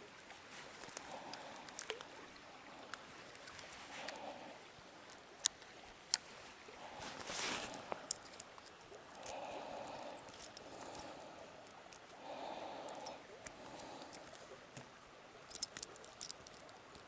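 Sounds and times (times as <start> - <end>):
fishing rod clicks: 0.8 - 2.2, 7.2 - 14.9, 15.5 - 17.0.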